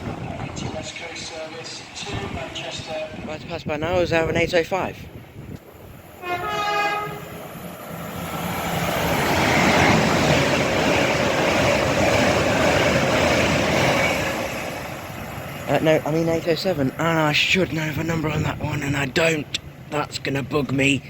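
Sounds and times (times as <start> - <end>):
train passing at speed: 0.0 - 21.0
train horn blast: 6.2 - 7.4.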